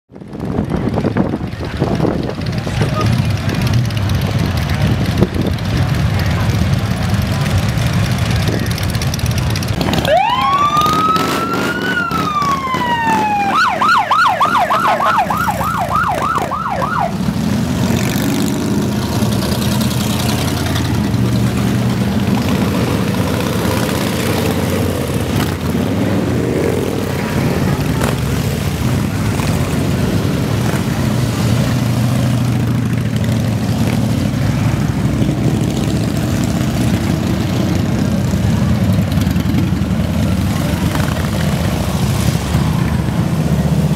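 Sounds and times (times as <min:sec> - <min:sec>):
motorcycle engines rumbling: 0:00.1 - 0:43.9
siren wailing and yelping: 0:10.0 - 0:17.3.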